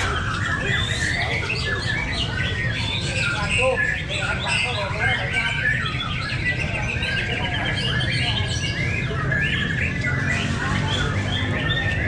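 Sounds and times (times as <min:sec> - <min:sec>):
songbirds singing: 0:00.0 - 0:12.0.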